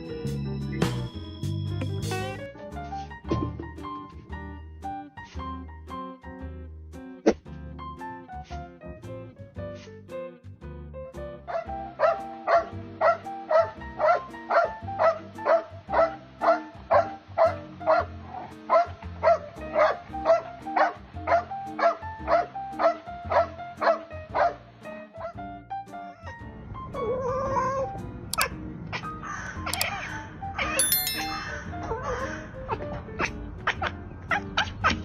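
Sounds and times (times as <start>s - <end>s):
background music: 0.0s - 30.1s, 30.8s - 32.5s
dog barking: 11.5s - 24.6s.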